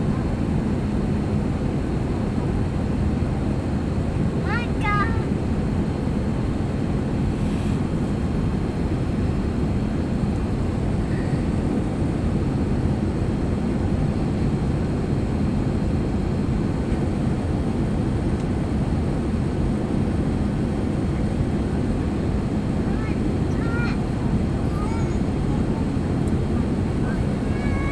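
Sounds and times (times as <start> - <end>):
airliner cabin drone: 0.0 - 27.9.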